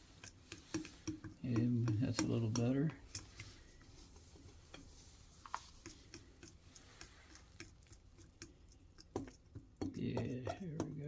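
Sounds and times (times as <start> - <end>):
utensil clicking against bowl: 0.2 - 3.5, 5.8 - 11.0.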